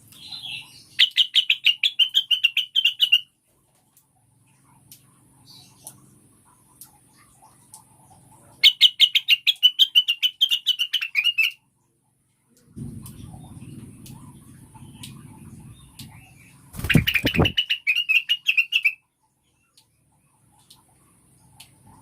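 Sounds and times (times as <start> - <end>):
low steady background rumble: 0.0 - 22.0
bird giving quick loud chirps: 16.8 - 18.9.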